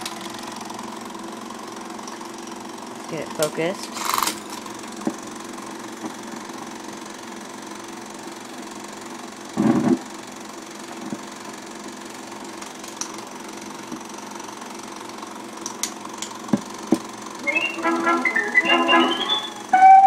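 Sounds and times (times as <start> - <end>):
film projector mechanical hum: 0.0 - 17.4.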